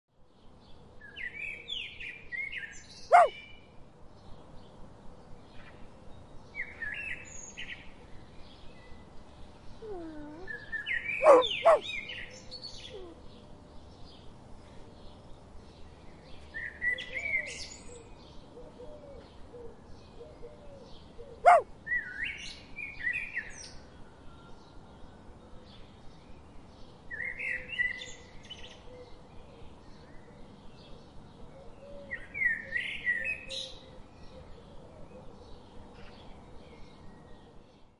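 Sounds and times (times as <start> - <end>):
faint background bird chirping: 0.2 - 37.9
songbird warbling: 3.1 - 3.4, 11.2 - 12.0.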